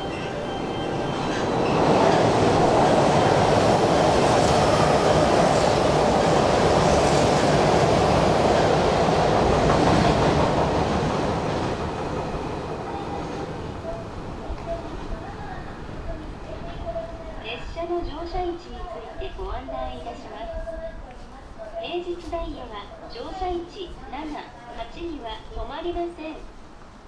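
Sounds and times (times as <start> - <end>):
electric train rumbling: 0.0 - 21.6.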